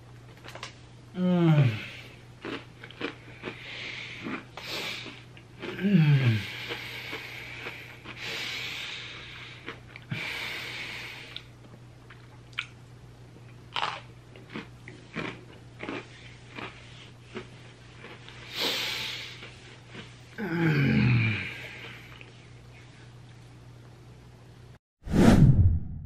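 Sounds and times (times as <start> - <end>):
person chewing cookie: 1.6 - 10.1, 11.3 - 12.8, 13.4 - 20.4, 21.3 - 23.4
low hum: 21.4 - 26.0.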